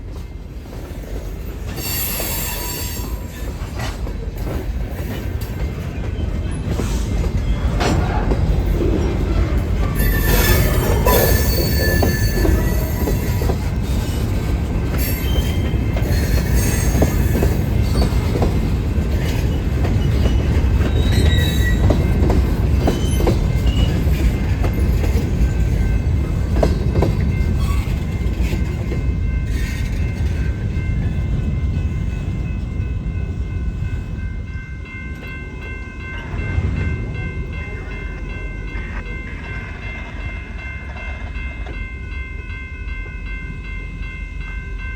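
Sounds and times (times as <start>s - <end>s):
train rumbling on rails: 0.0s - 44.9s
high wheel squeal: 1.8s - 3.5s, 9.8s - 13.5s, 15.0s - 18.2s, 20.0s - 22.0s.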